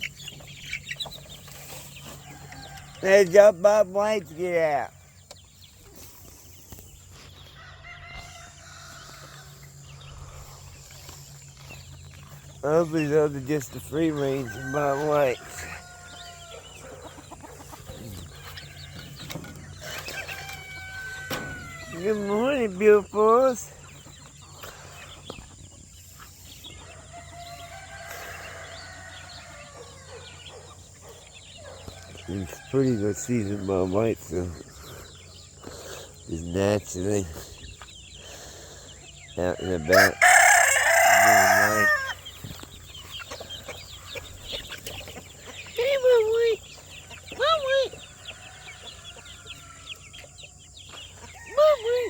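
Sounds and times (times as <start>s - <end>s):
poultry and birds chirping: 0.0s - 52.0s
rooster crowing: 14.2s - 17.0s, 20.3s - 22.0s, 26.8s - 30.3s, 39.8s - 42.3s.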